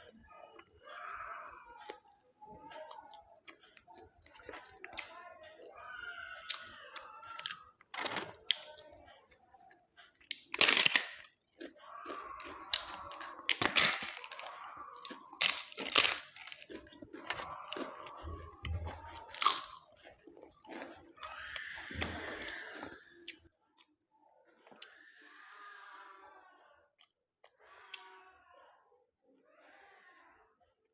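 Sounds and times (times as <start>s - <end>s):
wet chewing: 2.6s - 23.9s
crisp crunching when bitten: 10.3s - 21.9s.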